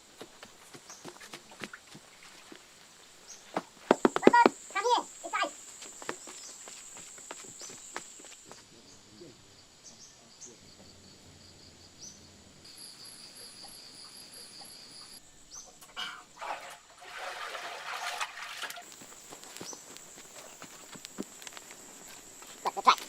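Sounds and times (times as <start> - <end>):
pulsing insect chirp: 0.0 - 15.8, 18.8 - 23.0
crickets trilling: 0.0 - 23.0.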